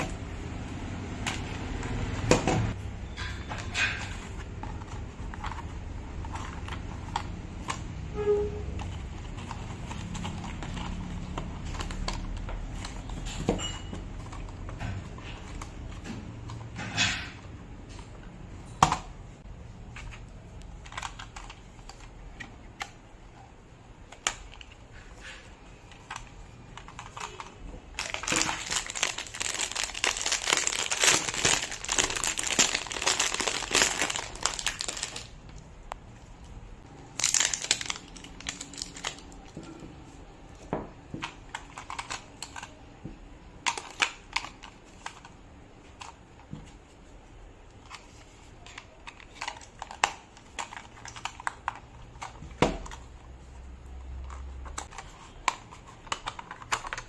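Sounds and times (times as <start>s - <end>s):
packaging crinkling: 26.0s - 35.7s, 36.9s - 39.6s.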